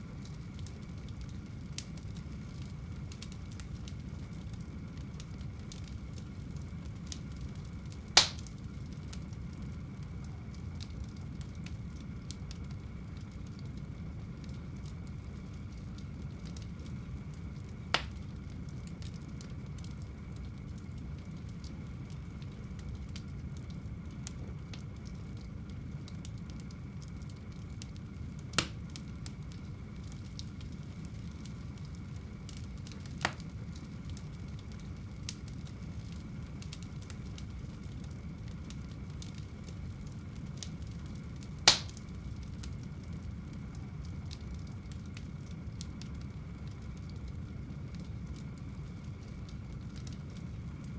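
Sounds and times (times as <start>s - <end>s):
wood fire crackling: 0.0s - 50.9s
sharp fire pops: 8.0s - 8.7s, 17.9s - 18.3s, 28.5s - 29.1s, 32.5s - 33.6s, 41.4s - 42.2s.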